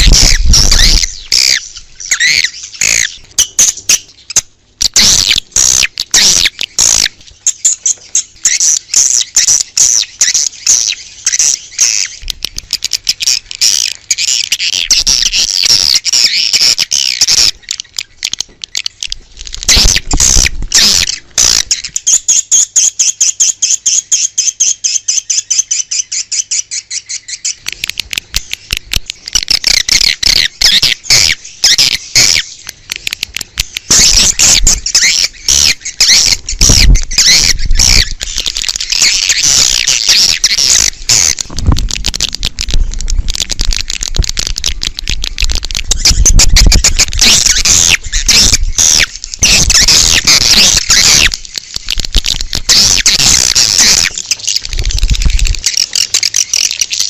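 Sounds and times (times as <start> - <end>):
swiftlets twittering: 33.6 - 57.0.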